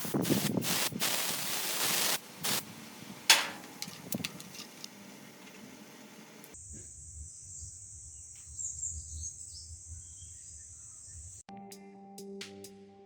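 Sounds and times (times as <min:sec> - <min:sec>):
hissing bursts: 0:00.0 - 0:06.6.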